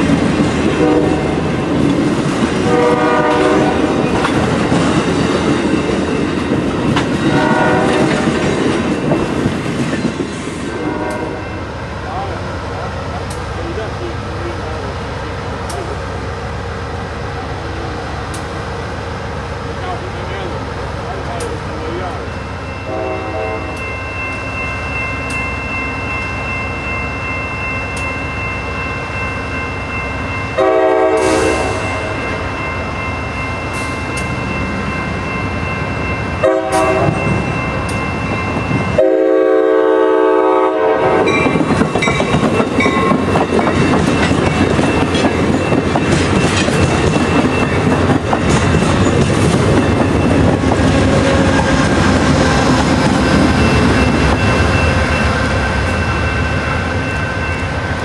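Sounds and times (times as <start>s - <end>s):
steady train drone: 0.0s - 58.0s
diesel locomotive horn blasts: 0.7s - 1.5s, 2.6s - 4.0s, 7.2s - 8.5s, 10.7s - 11.7s, 22.8s - 24.0s, 30.6s - 32.4s, 36.4s - 37.5s, 38.8s - 43.2s, 50.7s - 52.2s
train wheels clattering over rail joints: 1.4s - 11.3s, 41.3s - 54.8s.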